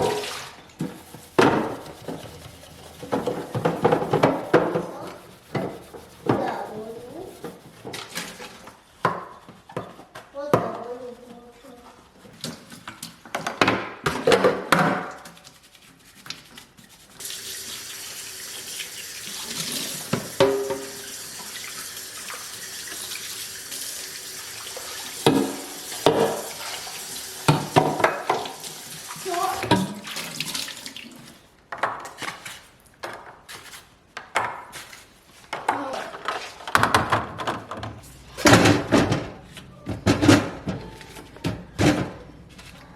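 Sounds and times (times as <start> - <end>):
things knocking and clattering: 0.0 - 5.0, 35.5 - 42.4
tap running into sink: 18.6 - 23.3, 24.3 - 30.6.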